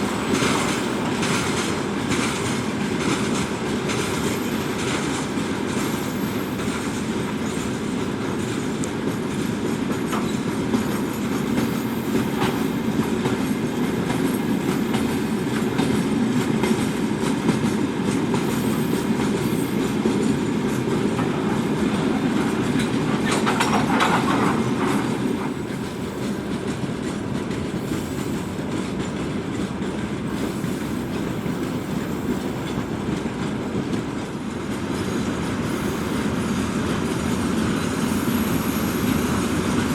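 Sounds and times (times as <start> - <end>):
freight train wagons rumbling: 0.0 - 39.9
wheels clattering over rail joints: 0.0 - 39.9.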